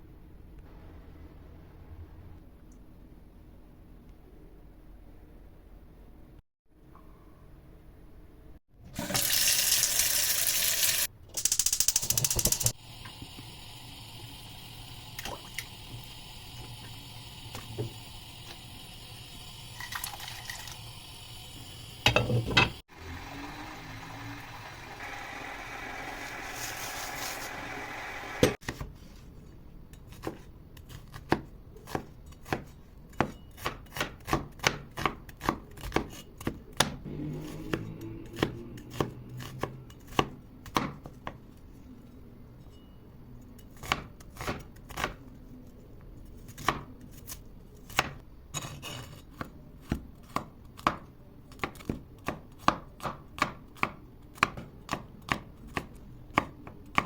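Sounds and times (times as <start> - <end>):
knife chopping on cutting board: 30.1 - 37.8.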